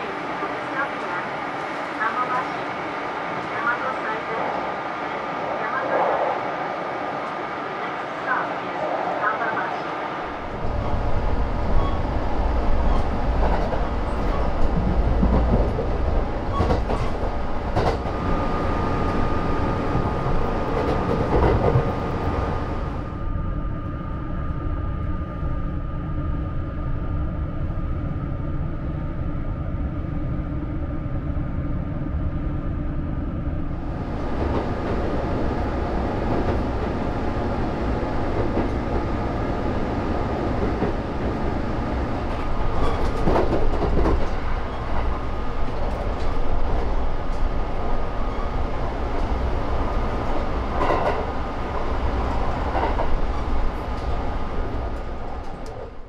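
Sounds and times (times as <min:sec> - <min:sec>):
train wheels rumbling on rail: 0:07.0 - 0:23.2, 0:33.6 - 0:56.0
train rattling: 0:07.2 - 0:23.1, 0:33.7 - 0:56.0.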